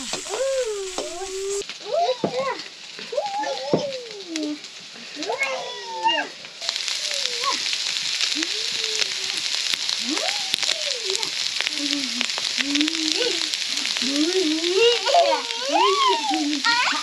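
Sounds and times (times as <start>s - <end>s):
faint voice: 0.0s - 6.4s, 10.0s - 17.0s
food sizzling in hot oil: 0.0s - 17.0s.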